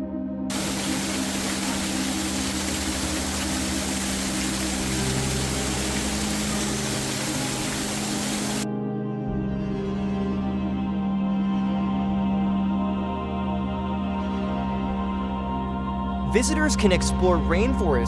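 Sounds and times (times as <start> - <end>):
rush of falling water: 0.5 - 8.7.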